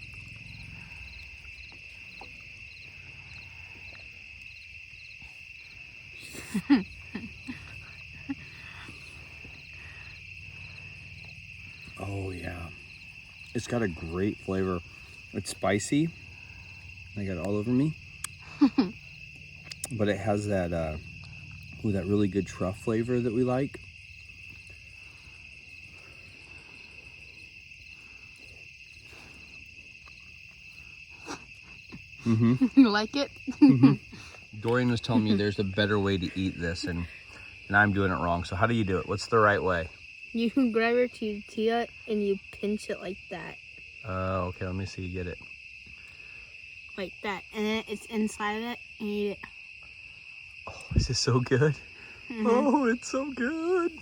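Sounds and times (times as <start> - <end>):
crickets and night insects chirping: 0.0 - 54.0
person humming while eating: 32.2 - 32.7.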